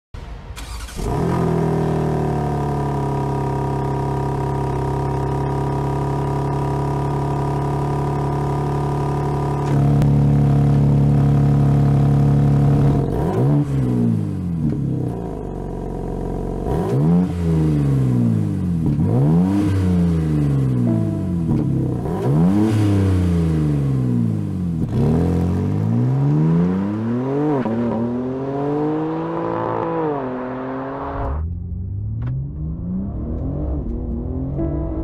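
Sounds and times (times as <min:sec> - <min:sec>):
engine revving: 0:00.6 - 0:34.8.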